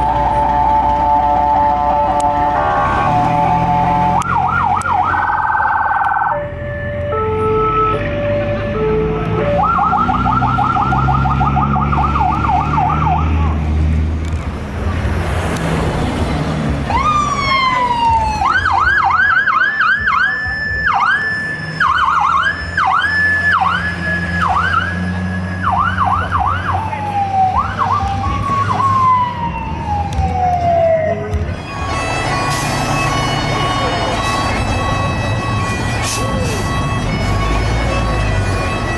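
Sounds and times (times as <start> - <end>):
electronic sirens wailing: 0.0 - 13.7, 16.8 - 38.9
diesel engines rumbling: 0.0 - 38.9
buzzy air horn: 31.6 - 38.9.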